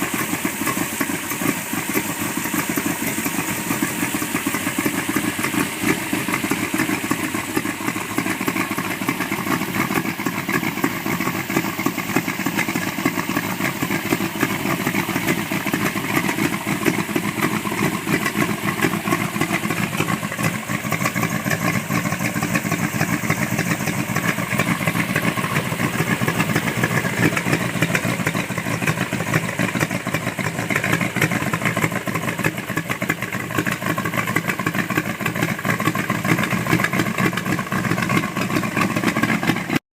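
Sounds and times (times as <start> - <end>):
truck engine idling: 0.0 - 39.8.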